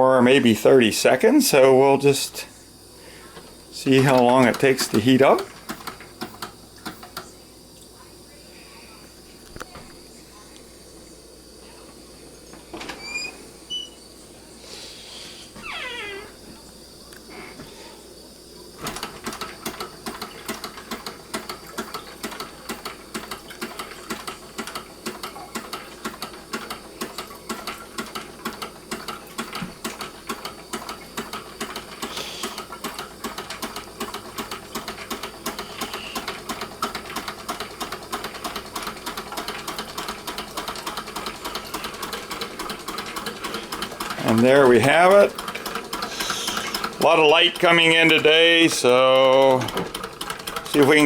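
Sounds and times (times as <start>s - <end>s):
gas burner hissing: 0.0s - 51.0s
engine mechanical clatter: 18.8s - 51.0s.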